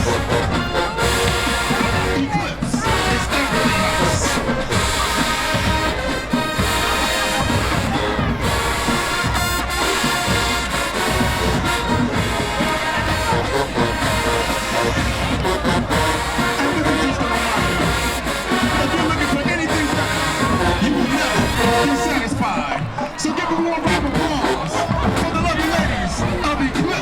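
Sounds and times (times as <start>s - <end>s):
marching band brass: 0.0s - 27.0s
steady drum beat: 0.0s - 27.0s.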